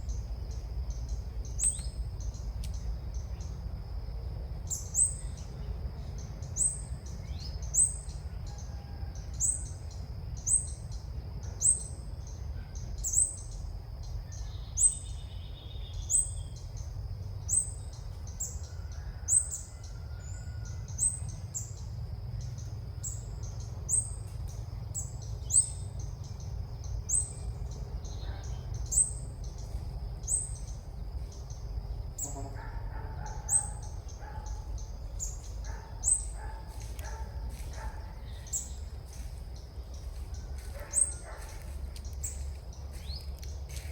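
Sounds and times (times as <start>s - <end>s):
bird call chirp: 32.2s - 43.9s.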